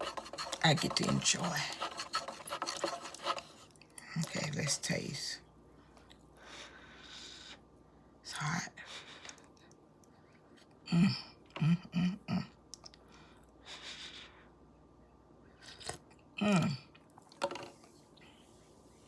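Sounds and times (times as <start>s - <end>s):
woman murmuring mm: 10.8s - 12.6s, 16.4s - 17.0s.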